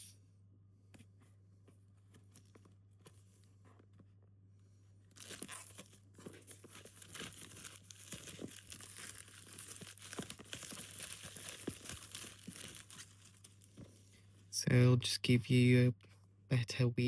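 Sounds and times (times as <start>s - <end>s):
packaging crinkling and tearing: 5.1s - 13.9s.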